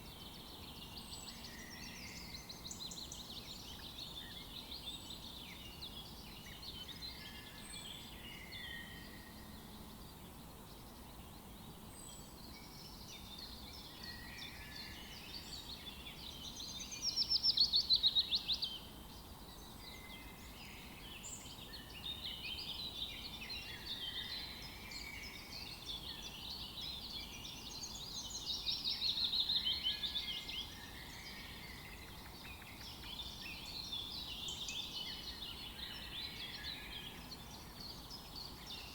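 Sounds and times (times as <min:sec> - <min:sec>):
birds calling and singing: 0:19.5 - 0:38.9.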